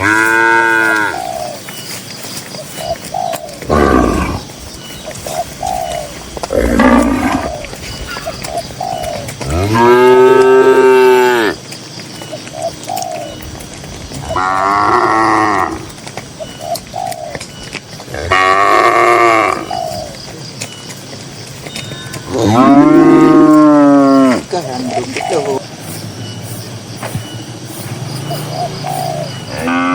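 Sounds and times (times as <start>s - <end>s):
cattle mooing: 0.0s - 1.3s, 3.6s - 4.5s, 6.4s - 7.6s, 9.4s - 11.6s, 14.2s - 16.0s, 18.1s - 19.7s, 22.2s - 24.6s, 29.5s - 29.9s.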